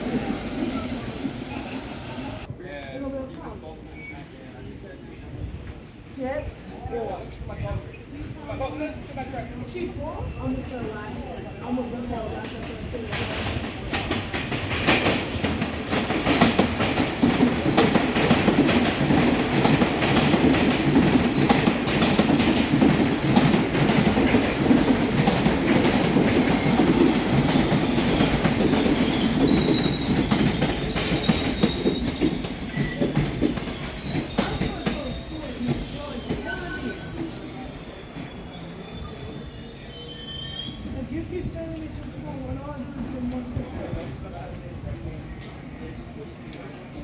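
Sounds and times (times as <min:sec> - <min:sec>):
subway train wheels rumbling: 0:00.0 - 0:47.0
thin wheel squeal: 0:33.7 - 0:40.8.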